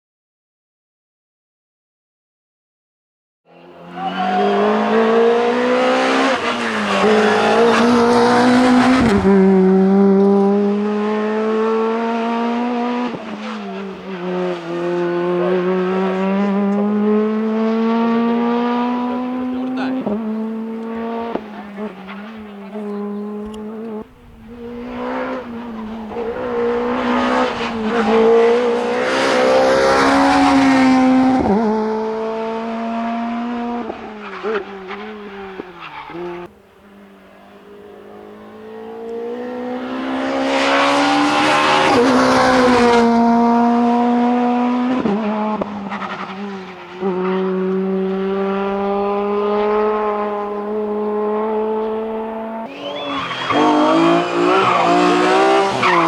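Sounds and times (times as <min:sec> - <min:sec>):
rally car engine driven flat out: 0:03.6 - 0:56.0.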